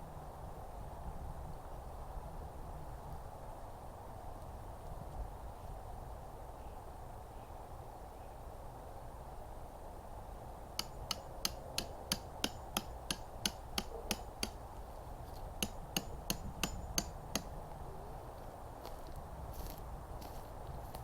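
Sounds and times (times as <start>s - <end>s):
sharp knocks: 10.8s - 14.6s, 15.6s - 17.5s.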